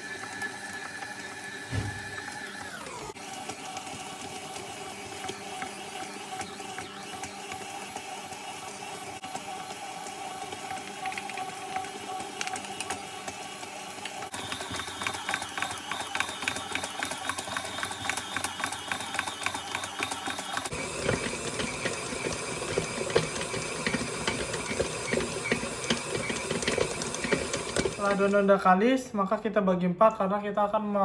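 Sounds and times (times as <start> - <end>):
electric mixer whirring: 0.0 - 28.5.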